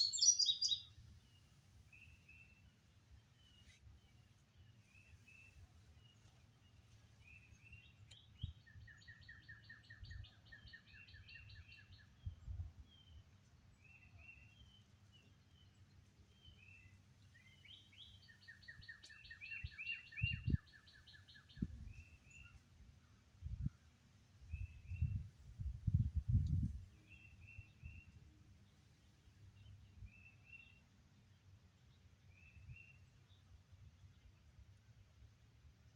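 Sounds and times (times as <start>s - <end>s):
bird trill: 0.0s - 0.9s
birds chirping: 0.0s - 2.5s.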